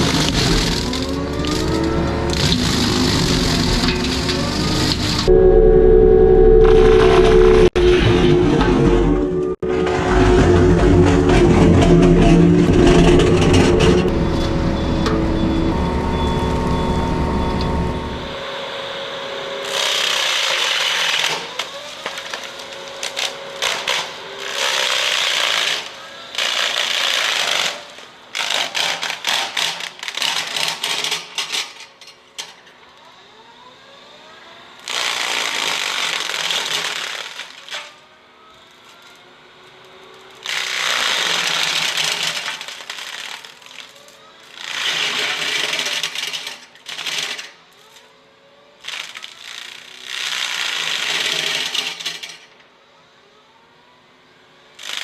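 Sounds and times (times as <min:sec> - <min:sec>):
flail mower shredding wood: 0:00.0 - 0:05.3, 0:06.6 - 0:18.3, 0:19.6 - 0:31.3, 0:34.8 - 0:38.0, 0:40.2 - 0:47.6, 0:48.8 - 0:52.4
heavy machine running: 0:00.0 - 0:20.0.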